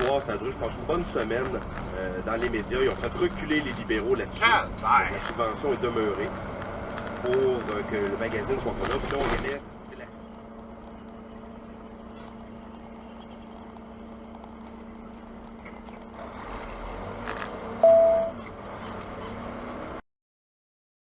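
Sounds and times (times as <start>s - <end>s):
road noise inside cab: 0.0s - 20.0s
truck engine drone: 0.0s - 20.0s
loud single-pitched tone: 17.8s - 18.4s.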